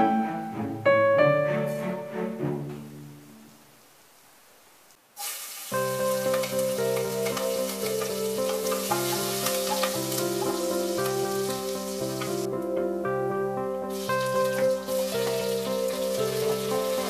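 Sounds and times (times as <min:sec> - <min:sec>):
background music sustained notes: 0:00.0 - 0:03.7, 0:05.8 - 0:17.0
chillies sizzling in hot oil: 0:05.2 - 0:12.5, 0:13.9 - 0:17.0
wooden spatula stirring: 0:05.8 - 0:12.5.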